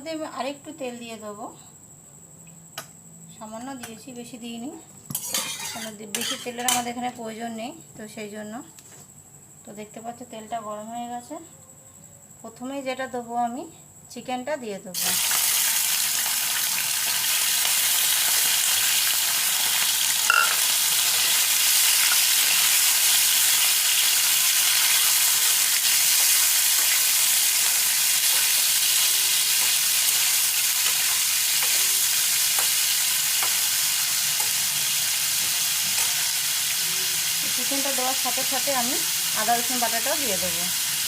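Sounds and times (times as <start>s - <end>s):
chicken sizzling in hot oil: 15.0s - 41.0s.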